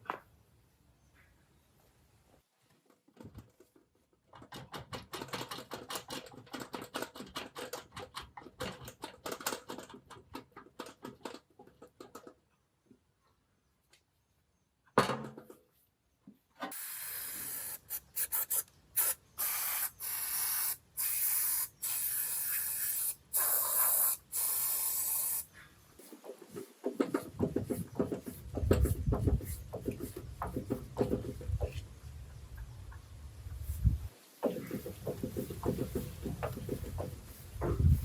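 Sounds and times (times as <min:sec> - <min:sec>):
hissing spray bursts: 0:16.7 - 0:26.2
rubbing and scraping strokes: 0:22.4 - 0:32.0, 0:33.5 - 0:38.0.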